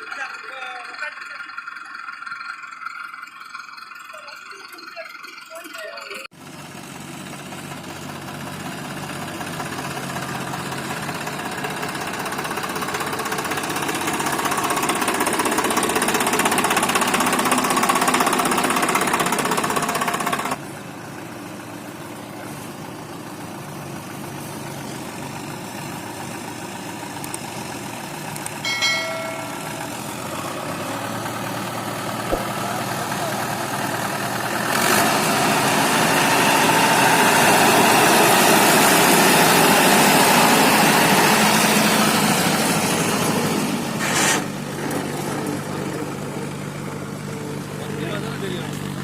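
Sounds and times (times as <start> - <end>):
tractor diesel engines running: 0.0 - 49.0
short high-pitched tone: 28.6 - 30.4.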